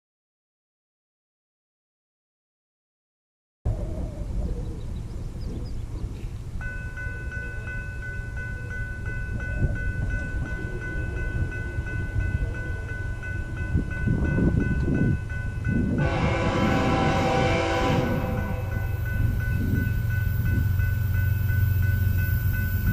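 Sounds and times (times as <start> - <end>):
train rumble: 3.7 - 22.9
locomotive horn: 16.0 - 19.0
steady ringing tone: 17.7 - 22.9.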